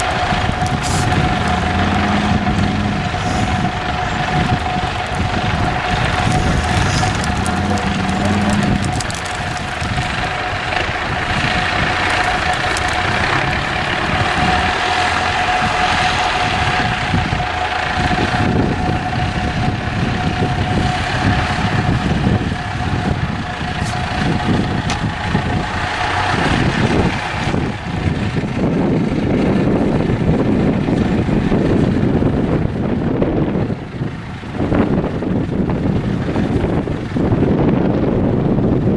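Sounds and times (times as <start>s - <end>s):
steady high whine: 0.0s - 28.1s
truck diesel engine rumble: 0.0s - 38.9s.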